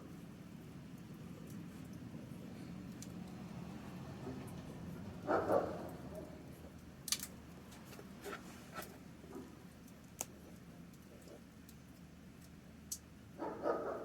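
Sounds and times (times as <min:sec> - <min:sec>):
campfire crackling and popping: 0:06.7 - 0:07.7.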